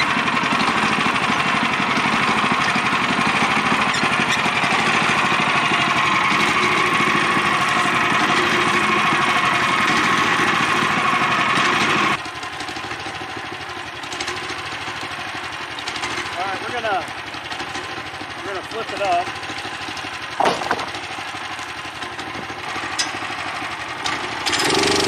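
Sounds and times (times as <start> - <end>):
band saw cutting timber: 0.0 - 12.2, 15.7 - 25.0
engine running: 0.0 - 25.0.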